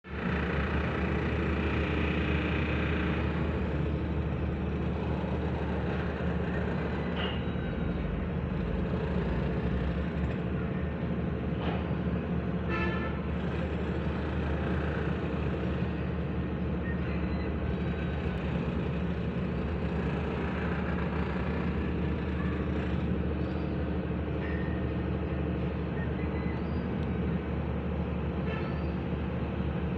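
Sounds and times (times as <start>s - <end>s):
road traffic hum: 0.0s - 29.9s
short vehicle horn toot: 12.7s - 13.2s.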